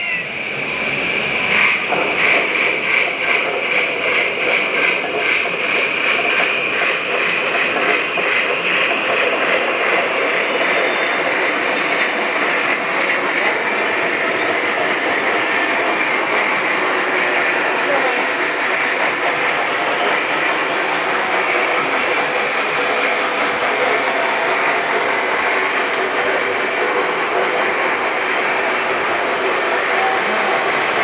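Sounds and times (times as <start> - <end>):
model trains running on track: 0.0 - 31.0
rhythmic clicking: 1.2 - 28.2.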